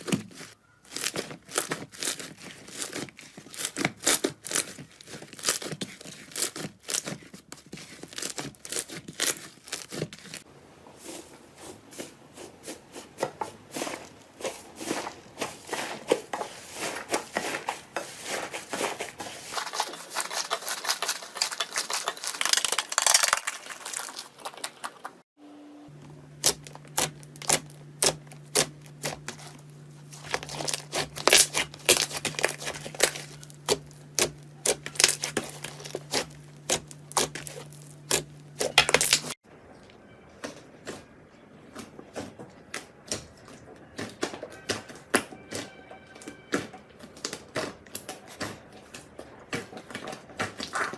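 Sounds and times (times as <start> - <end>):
slime squished by hand: 30.2 - 39.3.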